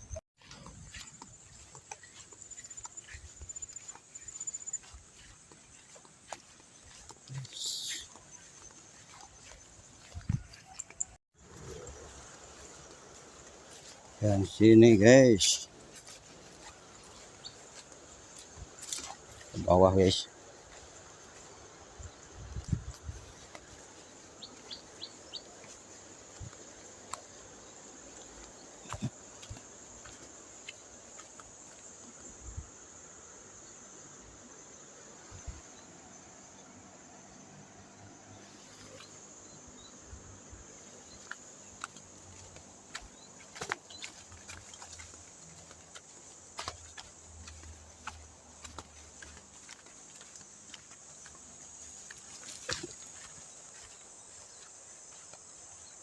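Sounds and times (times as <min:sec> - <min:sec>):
small bird chirping: 0:00.0 - 0:30.2
steady outdoor hiss: 0:00.0 - 0:56.0.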